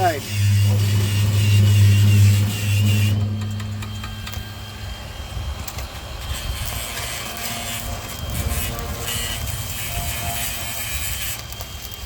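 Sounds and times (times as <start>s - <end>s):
welding arc buzzing: 0.0s - 5.0s, 5.6s - 12.0s.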